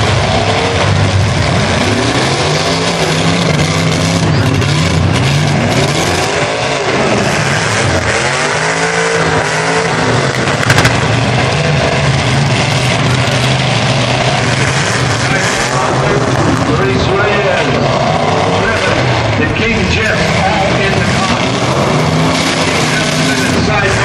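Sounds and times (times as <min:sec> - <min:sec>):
truck engine revving: 0:00.0 - 0:24.0
sharp crackle: 0:10.5 - 0:11.4.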